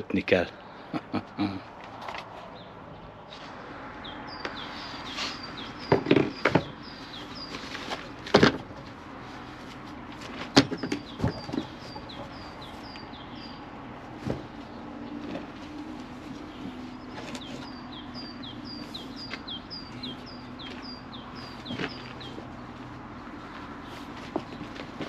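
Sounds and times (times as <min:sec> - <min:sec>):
small bird chirping: 0:04.0 - 0:08.0, 0:10.8 - 0:13.7, 0:16.5 - 0:22.6.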